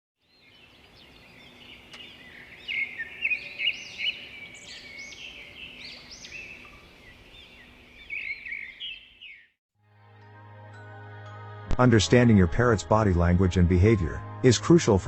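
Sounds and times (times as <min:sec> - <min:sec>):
small birds chirping and whistling: 0:00.3 - 0:09.6.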